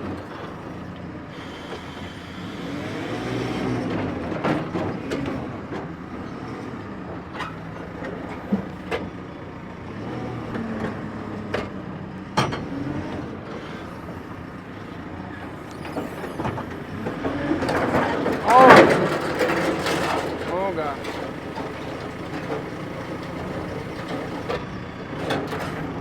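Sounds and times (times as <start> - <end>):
metal clanks and knocks: 15.8 - 26.0.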